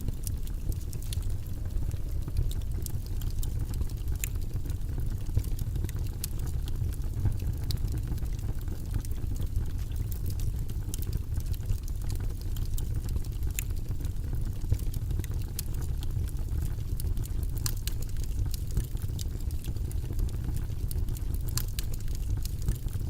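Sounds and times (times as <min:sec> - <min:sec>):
low rumbling white noise: 0:00.0 - 0:23.0.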